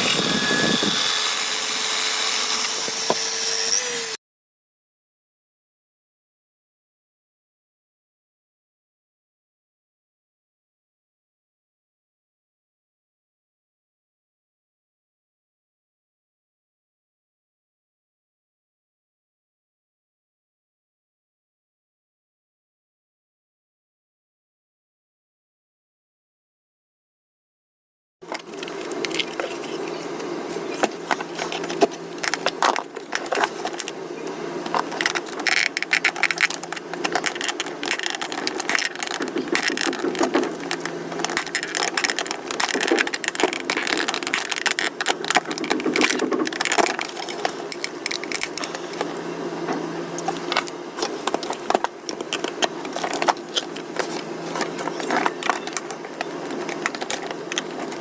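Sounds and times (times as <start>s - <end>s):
small hard parts clicking and rattling: 28.3s - 30.0s, 34.6s - 49.1s, 50.2s - 58.0s.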